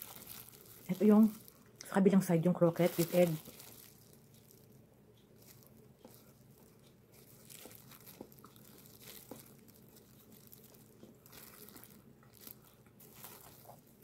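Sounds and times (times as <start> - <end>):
plastic gloves crinkling: 0.0 - 14.0
chewing soft bread: 3.4 - 14.0.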